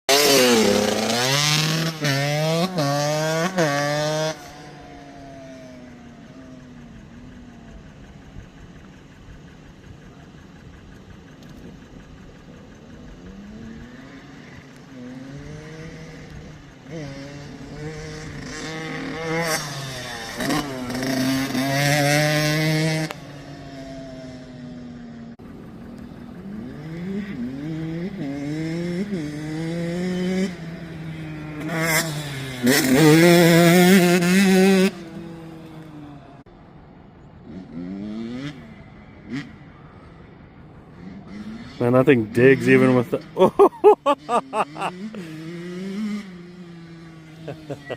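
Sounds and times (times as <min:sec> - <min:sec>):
dirt bike engine revving: 0:00.1 - 0:09.6, 0:11.4 - 0:36.4, 0:40.9 - 0:47.9.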